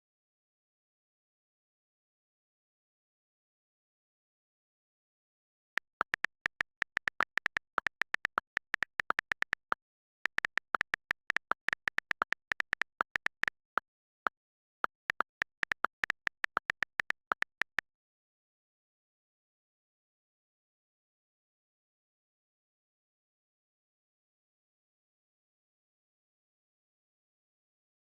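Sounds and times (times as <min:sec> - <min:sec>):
keyboard typing: 0:05.8 - 0:13.8, 0:14.8 - 0:17.8.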